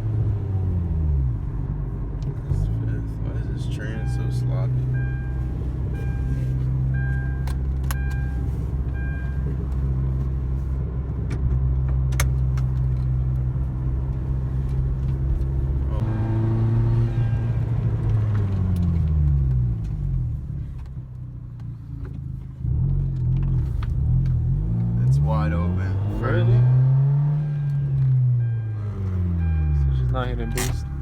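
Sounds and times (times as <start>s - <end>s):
car engine revving: 0.0s - 20.9s, 22.4s - 31.0s.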